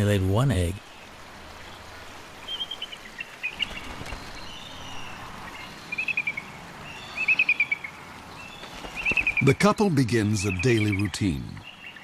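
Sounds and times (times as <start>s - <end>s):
faint background hiss: 0.0s - 12.0s
eagle chittering calls: 2.4s - 9.6s, 10.2s - 12.0s.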